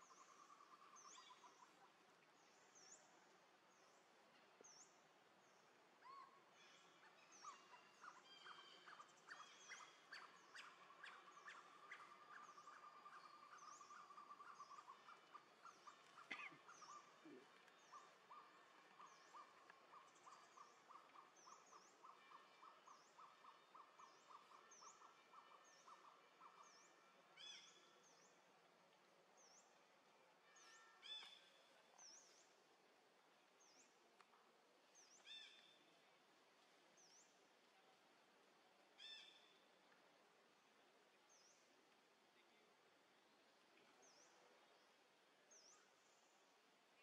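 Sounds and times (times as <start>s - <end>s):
loud bird calls: 8.4s - 22.2s.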